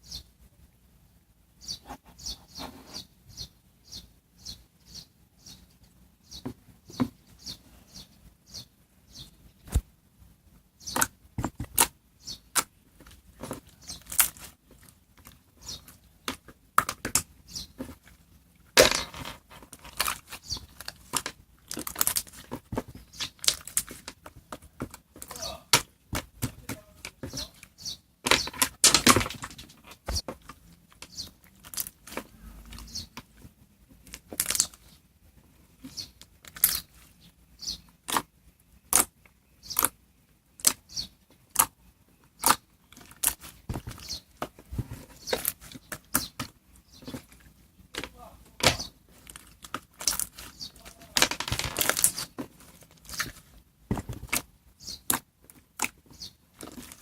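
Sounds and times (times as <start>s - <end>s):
slime crackling: 48.7s - 56.0s.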